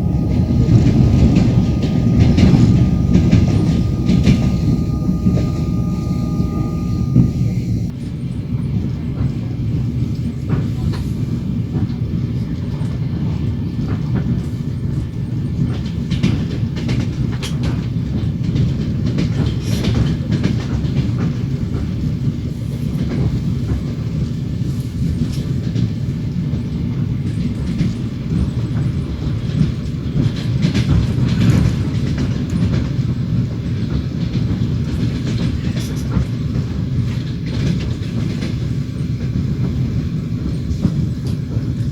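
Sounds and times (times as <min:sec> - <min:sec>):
train wheels clacking: 0:00.0 - 0:07.9, 0:09.2 - 0:41.9
railway carriage rumble: 0:00.0 - 0:41.9.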